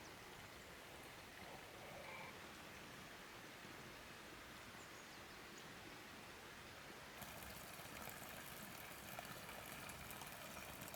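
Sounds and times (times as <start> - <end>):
faint background hiss: 0.0 - 10.9.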